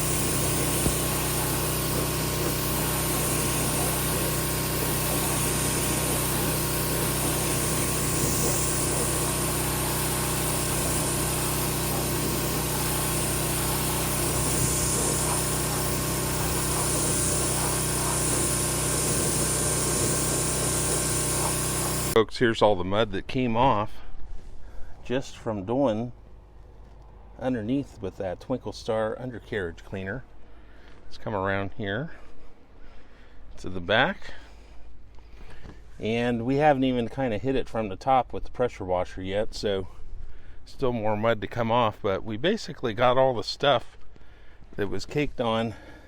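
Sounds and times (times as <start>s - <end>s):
pressure washer running: 0.0s - 22.2s
water jets hissing: 0.0s - 22.2s.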